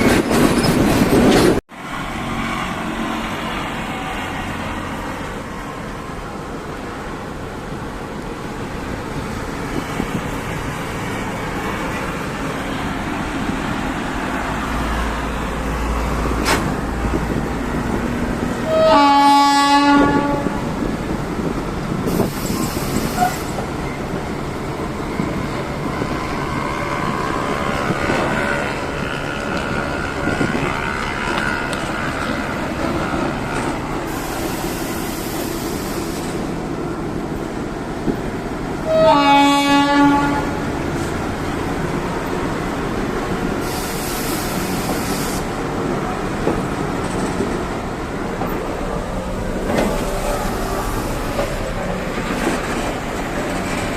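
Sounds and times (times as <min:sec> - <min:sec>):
train running on track: 0:00.0 - 0:53.9
train horn: 0:18.6 - 0:20.7, 0:38.8 - 0:40.6.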